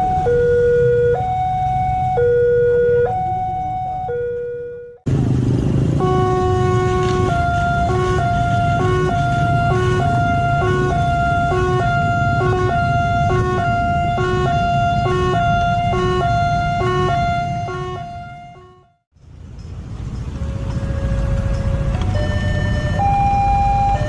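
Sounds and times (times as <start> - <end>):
level crossing two-tone alarm: 0.0 - 5.0, 22.2 - 24.0
low rumble of traffic: 0.0 - 24.0.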